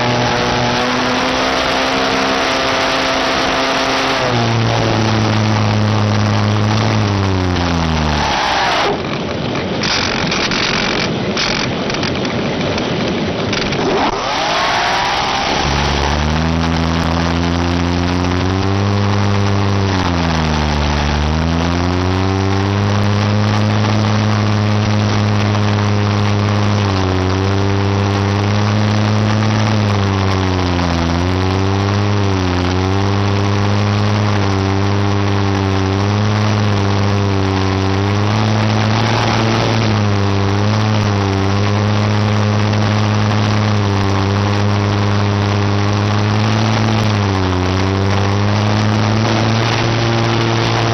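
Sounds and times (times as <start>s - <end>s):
engine idling: 0.0s - 50.9s.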